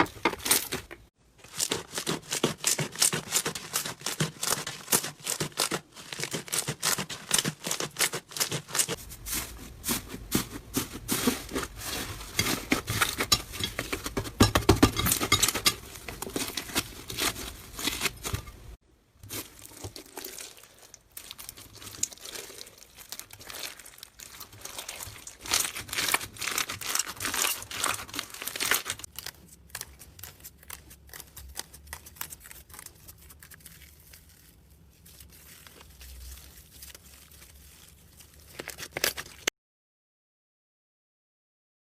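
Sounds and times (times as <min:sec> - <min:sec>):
slime squished by hand: 0:19.2 - 0:39.5.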